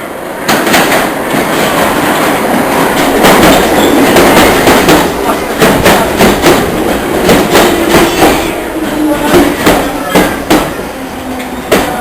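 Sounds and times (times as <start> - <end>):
train rumble: 0.0 - 12.0
train wheels clacking: 0.5 - 12.0.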